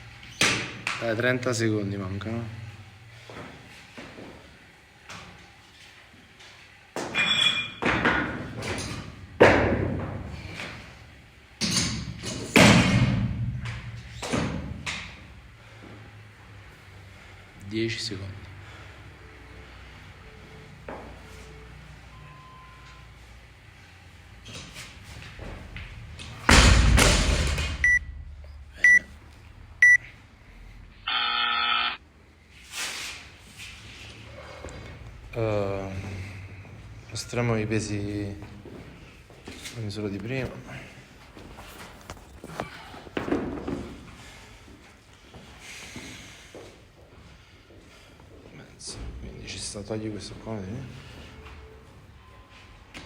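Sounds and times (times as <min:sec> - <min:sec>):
timer beeps: 0:27.8 - 0:28.1, 0:28.8 - 0:29.1, 0:29.8 - 0:30.0.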